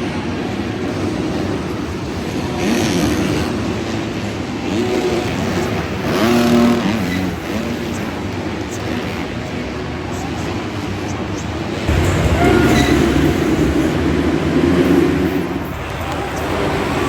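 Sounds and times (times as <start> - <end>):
motocross bikes revving: 0.0 - 17.0
background din: 0.1 - 17.0.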